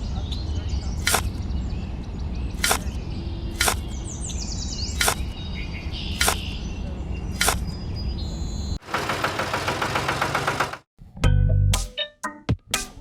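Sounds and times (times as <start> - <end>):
birds chirping: 0.0 - 9.0
sharp clicks: 1.0 - 1.4, 2.6 - 3.0, 3.6 - 4.0, 5.0 - 5.4, 6.2 - 6.6.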